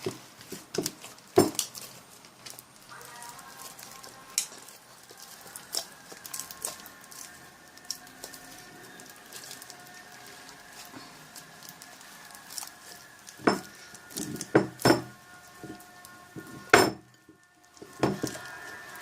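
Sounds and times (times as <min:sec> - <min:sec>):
slime crackling and squelching: 0:00.0 - 0:19.0.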